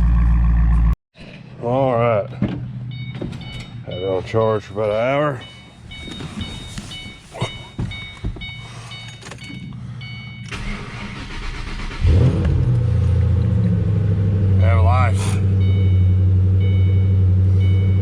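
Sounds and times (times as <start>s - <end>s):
car warning chime beeping: 2.8s - 11.5s, 14.6s - 18.0s
car engine cranking and starting: 10.4s - 18.0s.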